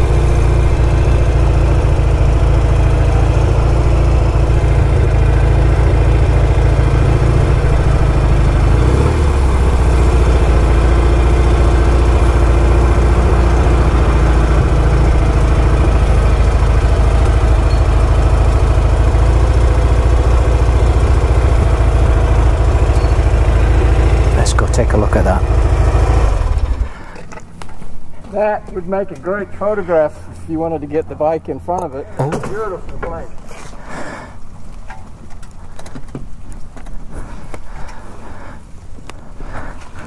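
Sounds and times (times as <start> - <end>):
motorcycle engine idling: 0.0 - 27.3.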